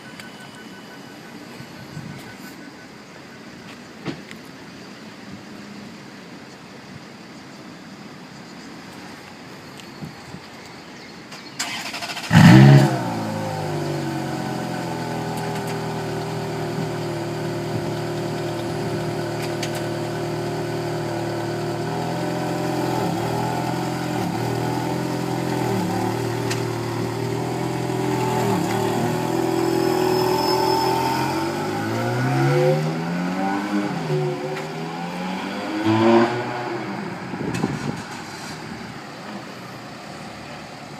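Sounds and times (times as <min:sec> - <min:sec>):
car engine starting and idling: 0:11.3 - 0:40.9
car engine revving: 0:11.6 - 0:39.1.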